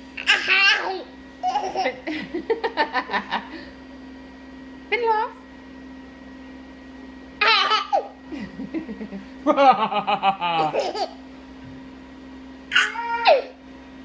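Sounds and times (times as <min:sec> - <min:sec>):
baby laughing: 0:00.2 - 0:02.1, 0:07.4 - 0:08.2, 0:10.3 - 0:11.2.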